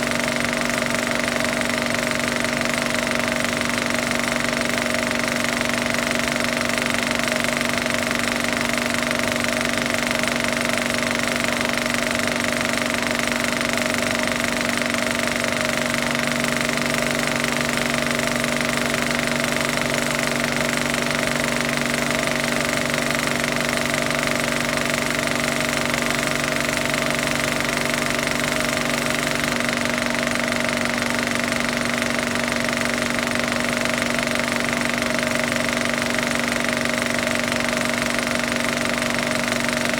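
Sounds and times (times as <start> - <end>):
film projector clattering: 0.0 - 39.9.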